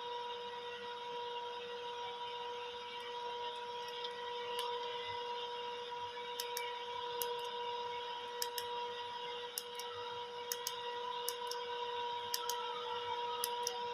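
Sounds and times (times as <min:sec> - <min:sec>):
sharp clicks: 0:06.4 - 0:07.5, 0:08.4 - 0:08.7, 0:09.6 - 0:09.9, 0:10.5 - 0:11.6, 0:12.3 - 0:12.6.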